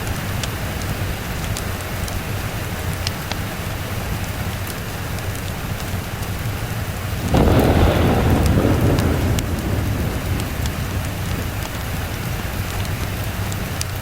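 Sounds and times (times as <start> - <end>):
steady rain: 0.0 - 14.0
fireplace crackles: 7.2 - 14.0.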